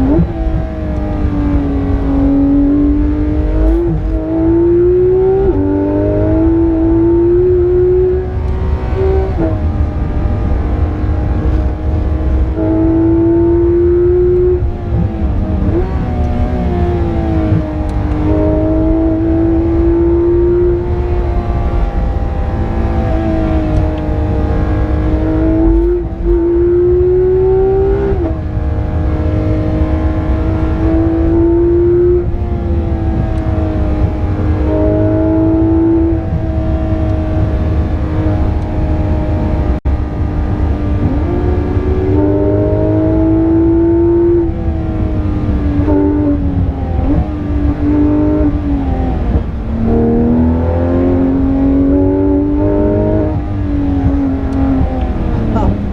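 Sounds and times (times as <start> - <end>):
car engine revving through gears: 0.0 - 55.9
road rumble: 0.0 - 55.9.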